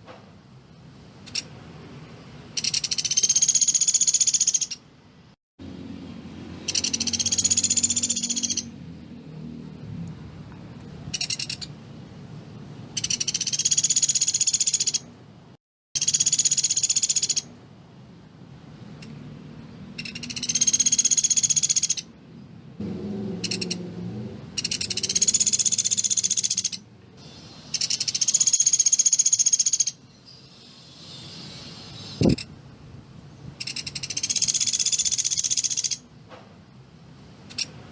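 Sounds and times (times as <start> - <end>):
woodpecker rattling trills: 2.6 - 4.8, 6.6 - 8.7, 11.1 - 11.7, 13.0 - 15.1, 16.0 - 17.5, 20.0 - 22.1, 23.4 - 23.8, 24.6 - 26.8, 27.7 - 30.0, 33.6 - 36.0.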